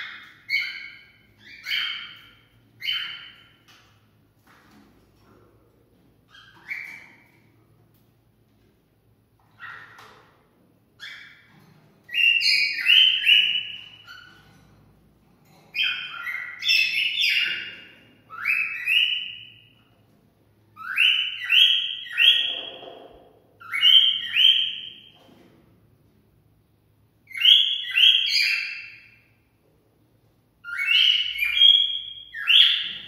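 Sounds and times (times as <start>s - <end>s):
cockatiel whistling: 12.1s - 14.3s, 18.3s - 19.6s, 20.8s - 22.8s, 23.6s - 25.0s, 27.3s - 29.1s, 30.6s - 33.0s.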